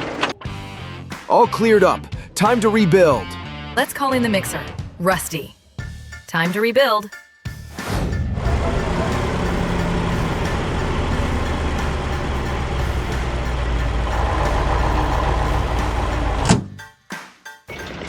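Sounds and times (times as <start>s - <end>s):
truck engine rumbling: 8.0s - 16.9s.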